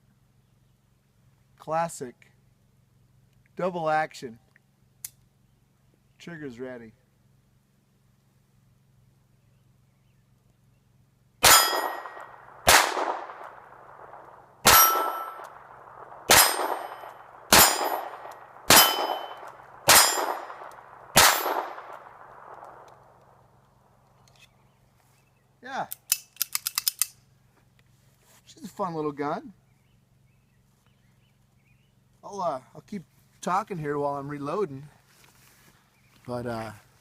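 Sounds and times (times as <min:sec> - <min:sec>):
pistol shots: 0:11.4 - 0:23.2.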